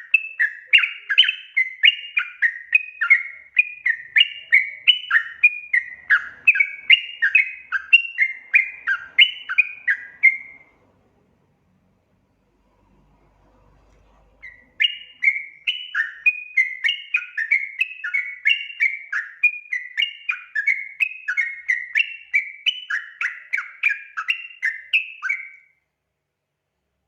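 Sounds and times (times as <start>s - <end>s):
bird singing warbled notes: 0.0s - 10.7s, 14.4s - 25.6s.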